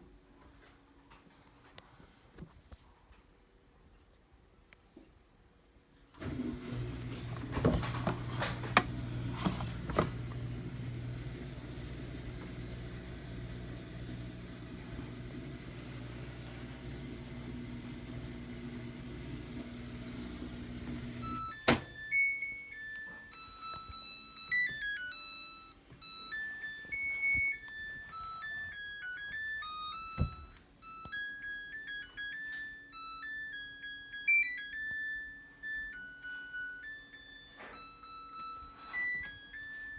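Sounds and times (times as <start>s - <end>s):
washing machine humming: 6.2s - 34.8s.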